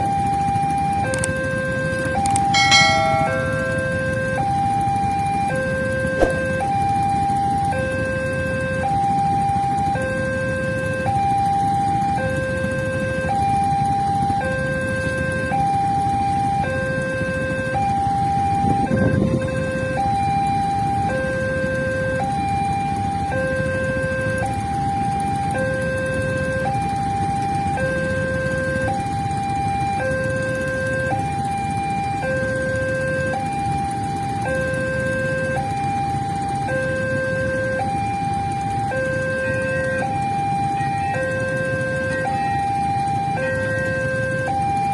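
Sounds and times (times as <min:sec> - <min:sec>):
level crossing alarm two-tone: 0:02.4 - 0:06.8.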